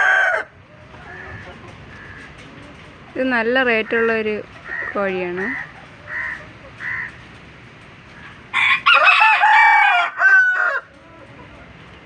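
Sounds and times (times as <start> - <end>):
rooster crowing: 0.0 - 1.2, 8.5 - 11.0.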